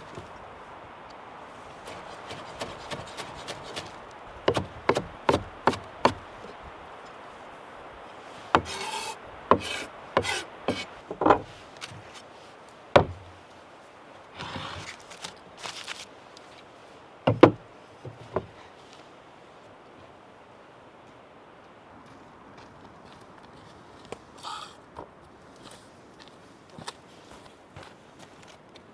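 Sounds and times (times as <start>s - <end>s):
knife scraping along board: 1.8s - 6.3s, 8.6s - 12.2s, 14.4s - 16.0s, 24.4s - 24.8s
knife knocking on cutting board: 13.0s - 13.3s.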